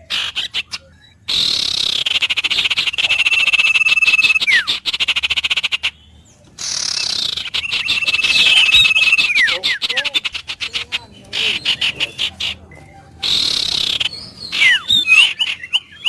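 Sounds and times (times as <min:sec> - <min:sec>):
pulsing animal call: 0:06.6 - 0:16.0.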